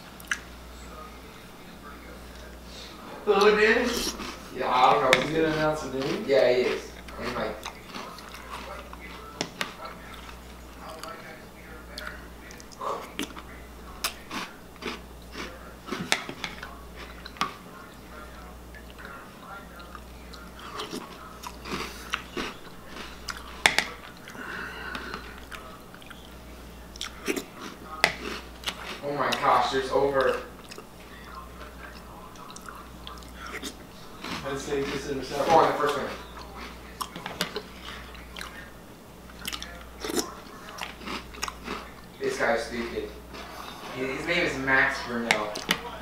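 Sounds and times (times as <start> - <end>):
person chewing and crunching cereal: 1.9 - 46.0.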